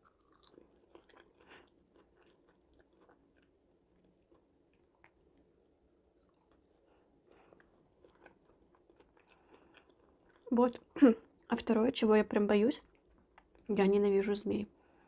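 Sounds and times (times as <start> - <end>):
chewing crunchy fries: 0.0 - 11.5.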